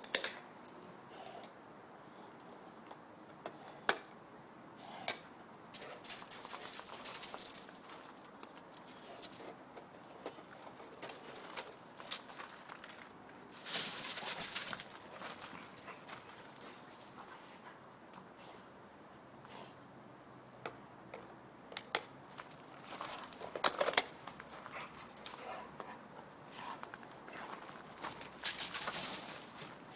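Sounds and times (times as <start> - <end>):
dog scuffling and clicking: 5.8 - 9.6, 10.2 - 17.8, 22.5 - 29.9.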